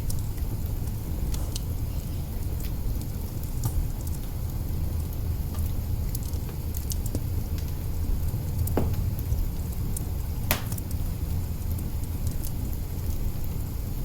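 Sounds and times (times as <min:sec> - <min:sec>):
wood fire burning: 0:00.0 - 0:14.0.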